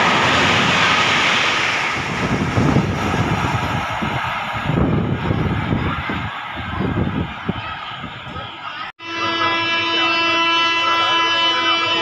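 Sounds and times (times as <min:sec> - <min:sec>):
wind buffeting microphone: 0:00.0 - 0:08.9
passing train rushing: 0:00.0 - 0:12.0.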